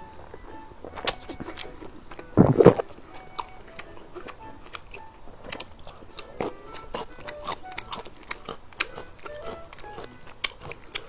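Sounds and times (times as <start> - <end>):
chewing noodles: 0.0 - 11.0
wet mouth clicks: 1.0 - 9.6.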